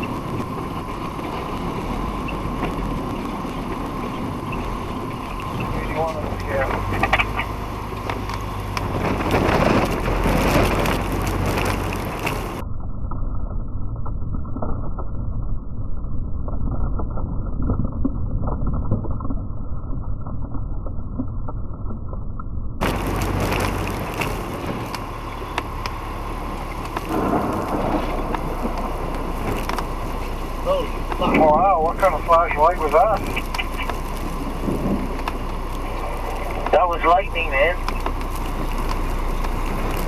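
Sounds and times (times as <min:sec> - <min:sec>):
truck running from inside cab: 0:00.0 - 0:12.6, 0:22.8 - 0:40.0.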